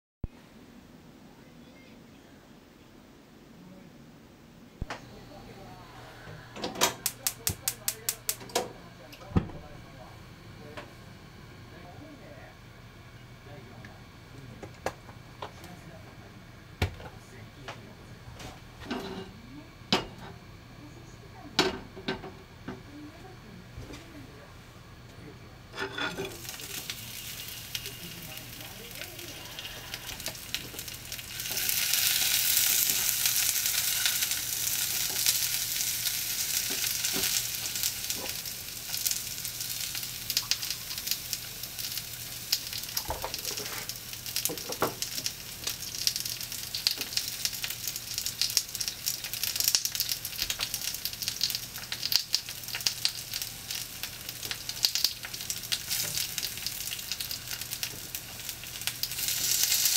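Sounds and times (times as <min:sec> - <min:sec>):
food sizzling in a skillet: 0:25.7 - 0:59.9.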